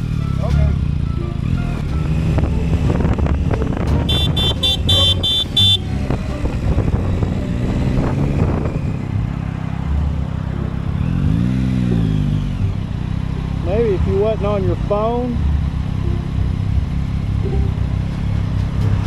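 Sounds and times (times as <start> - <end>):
motorcycle engine rumble: 0.0 - 19.0
short high-pitched beeps: 17.4 - 17.9.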